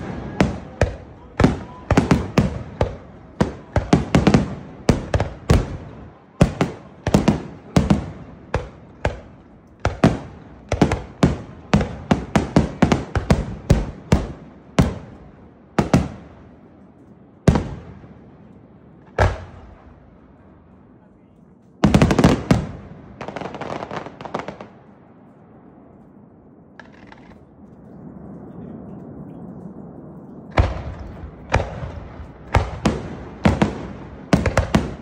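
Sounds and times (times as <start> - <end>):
fireworks bursting: 0.0 - 21.0, 21.7 - 25.9, 26.8 - 28.6, 30.5 - 35.0.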